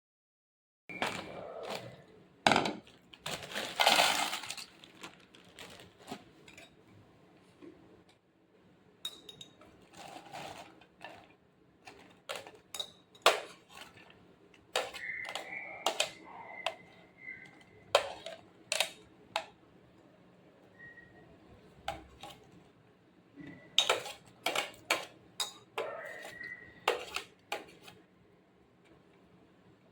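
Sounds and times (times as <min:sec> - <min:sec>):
utensils and dishes clattering: 0:00.9 - 0:04.9, 0:09.0 - 0:19.5, 0:23.4 - 0:28.0.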